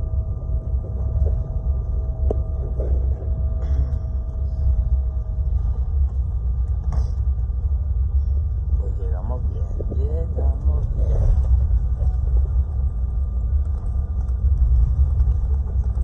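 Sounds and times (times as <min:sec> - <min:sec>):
faint steady whine: 0:00.0 - 0:16.0
jet engine and airflow rumble: 0:00.0 - 0:16.0.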